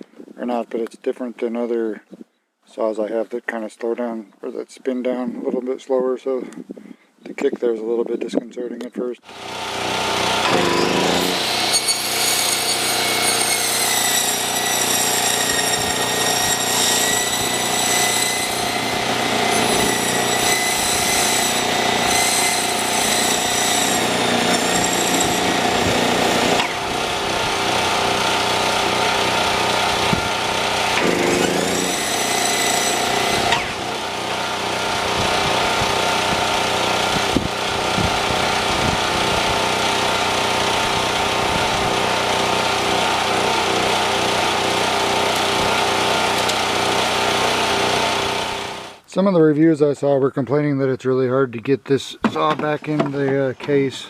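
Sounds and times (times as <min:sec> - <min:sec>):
circular saw cutting foam: 0:09.3 - 0:49.0.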